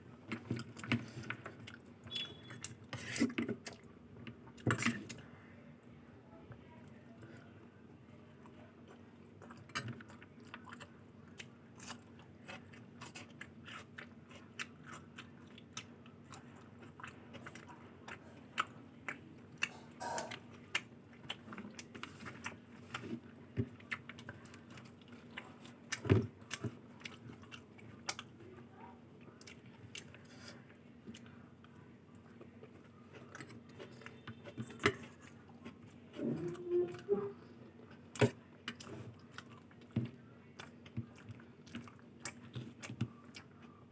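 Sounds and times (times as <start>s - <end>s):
chewing with mouth clicks: 8.4s - 28.5s, 29.2s - 37.0s, 37.9s - 43.9s
short pitched throat sound: 19.7s - 20.4s.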